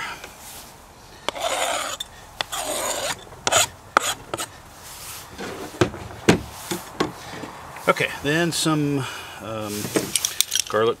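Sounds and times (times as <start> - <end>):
scraping on a cutting board: 1.3 - 4.5.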